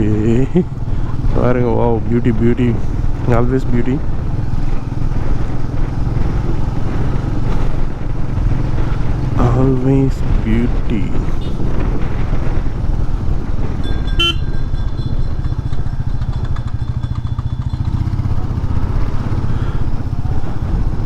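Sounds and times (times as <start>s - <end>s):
motorcycle engine running: 0.0s - 21.0s
vehicle horn: 11.4s - 11.8s, 13.8s - 16.1s.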